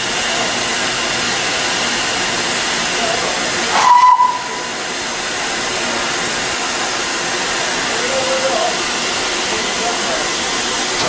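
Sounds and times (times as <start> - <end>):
steam locomotive hissing: 0.0 - 11.0
steam whistle blast: 3.7 - 4.8.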